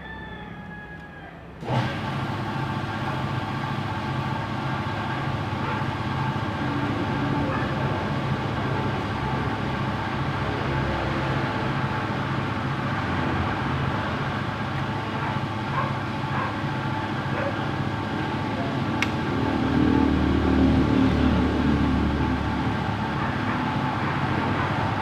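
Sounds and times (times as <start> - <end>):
vehicle engine running: 1.6 - 25.0
sharp click: 19.0 - 19.2.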